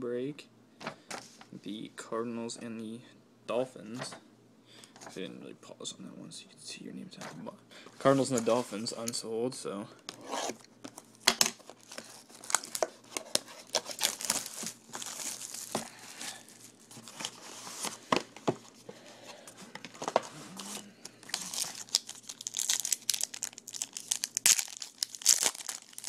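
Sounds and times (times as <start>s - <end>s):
plastic wrapping crinkling and tearing: 10.9s - 18.0s, 20.0s - 26.0s.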